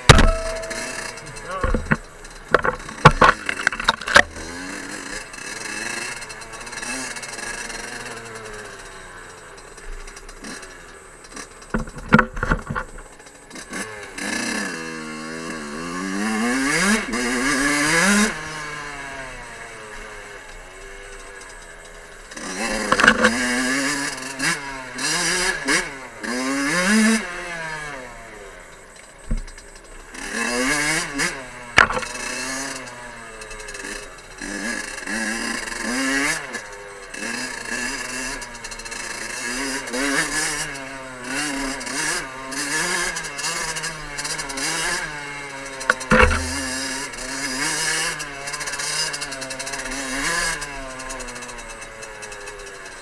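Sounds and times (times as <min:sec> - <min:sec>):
motorcycle knocking over rocks: 0:00.0 - 0:04.6, 0:11.6 - 0:13.1, 0:22.4 - 0:23.8, 0:29.2 - 0:29.9, 0:31.7 - 0:32.6, 0:45.8 - 0:47.4
two-stroke motorcycle engine revving: 0:00.0 - 0:53.0.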